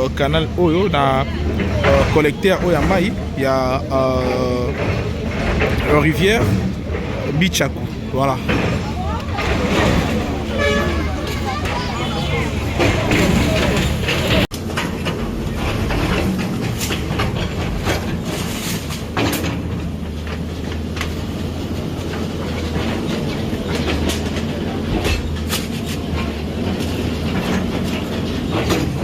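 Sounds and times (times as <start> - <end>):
construction machine engine running: 0.0 - 14.5
clanks and knocks: 0.0 - 29.0.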